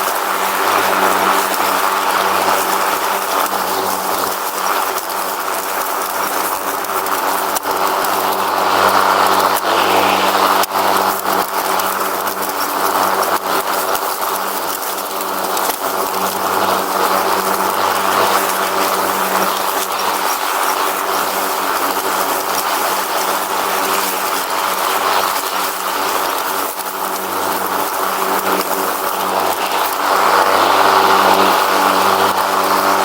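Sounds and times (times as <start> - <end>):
lawn mower engine running: 0.0 - 33.0.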